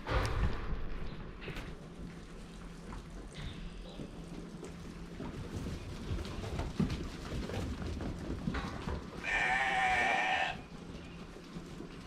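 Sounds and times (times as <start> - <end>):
sheep bleating: 9.2 - 10.7.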